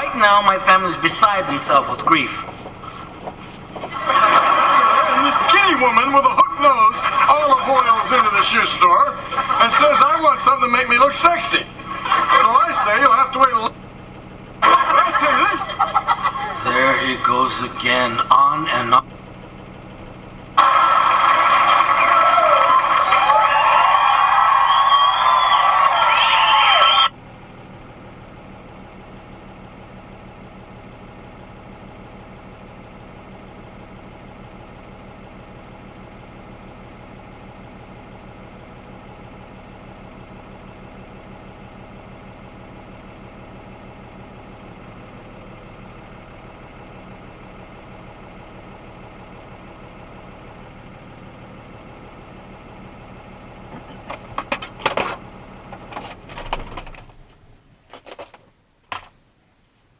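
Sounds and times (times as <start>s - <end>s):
truck engine droning: 0.0s - 57.8s
clattering: 55.8s - 59.1s.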